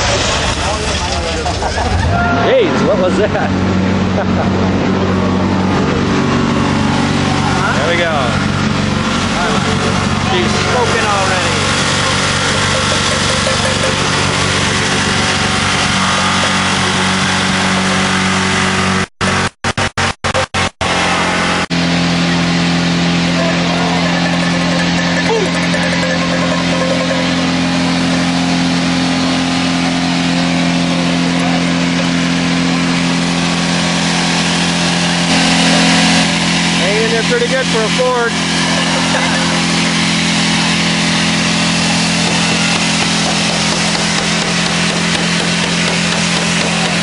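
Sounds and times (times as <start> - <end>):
car engine at high revs: 0.0 - 47.0.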